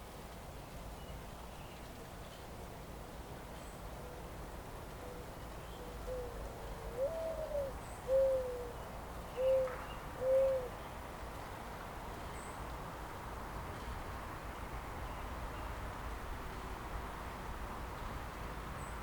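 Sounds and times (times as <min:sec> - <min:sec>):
soft background hiss: 0:00.0 - 0:19.0
bird hooting calls: 0:06.1 - 0:08.8, 0:09.4 - 0:10.7.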